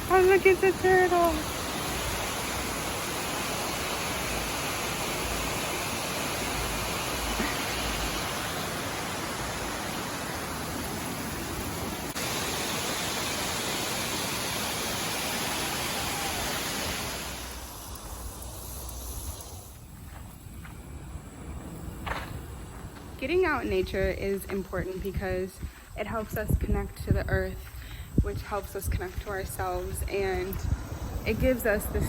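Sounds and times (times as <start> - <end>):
water rushing from waterfall: 0.0 - 17.6.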